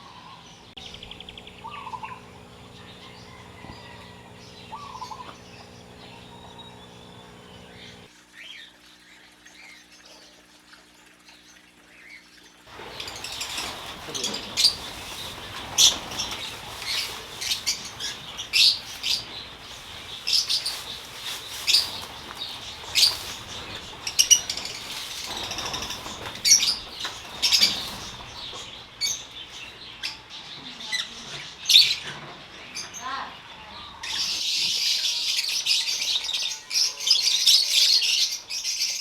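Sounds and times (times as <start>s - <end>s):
lovebirds chirping: 0.0s - 10.4s, 11.9s - 39.0s
wings flapping: 12.7s - 29.8s.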